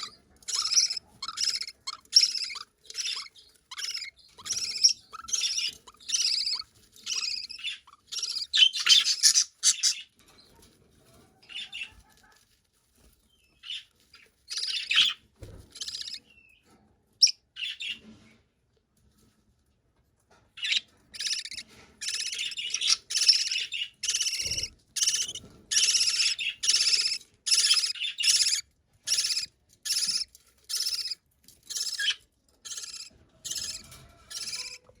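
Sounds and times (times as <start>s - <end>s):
budgerigar chicks chirping: 0.0s - 10.2s, 11.4s - 12.0s, 13.6s - 16.3s, 20.6s - 34.9s.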